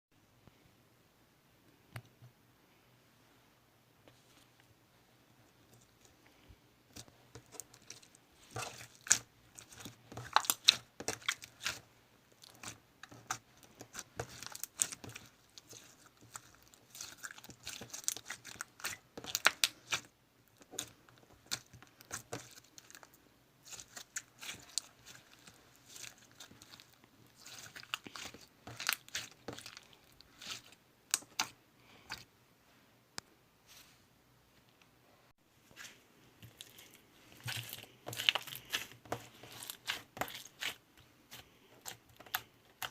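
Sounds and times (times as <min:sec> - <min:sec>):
slime squeezed crackling and popping: 0:08.6 - 0:11.8, 0:12.4 - 0:31.5.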